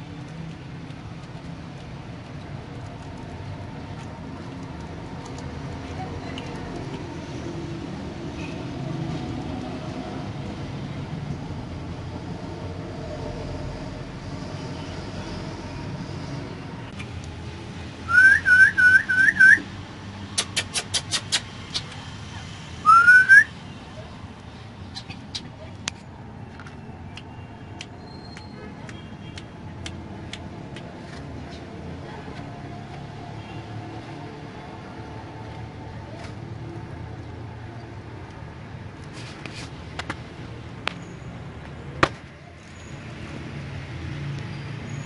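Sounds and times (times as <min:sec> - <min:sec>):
parrot whistling: 0:18.1 - 0:19.7, 0:22.8 - 0:23.5
sharp clicks: 0:20.4 - 0:22.0.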